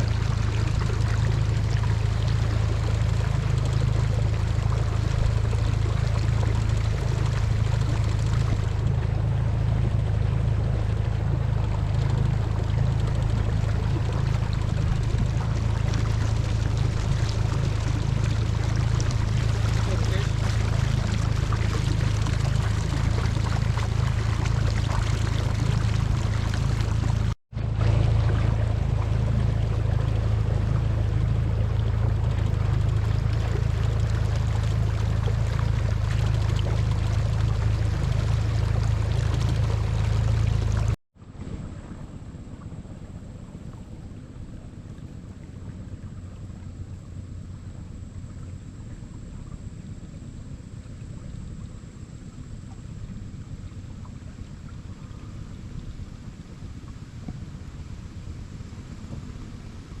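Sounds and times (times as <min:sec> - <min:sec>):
wind buffeting microphone: 0:00.0 - 0:47.9
boat motor running: 0:00.0 - 1:00.0
water splashing along hull: 0:00.0 - 1:00.0.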